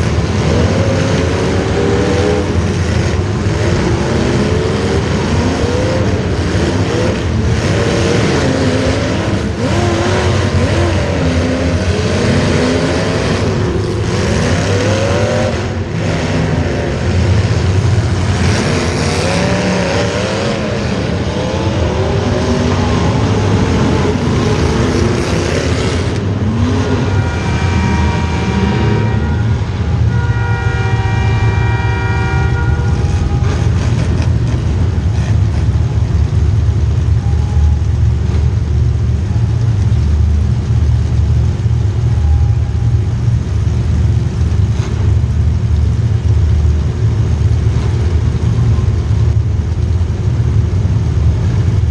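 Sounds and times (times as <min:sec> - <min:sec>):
racing engines revving: 0:00.0 - 0:51.9
several-toned whine: 0:35.8 - 0:40.3, 0:41.0 - 0:43.9.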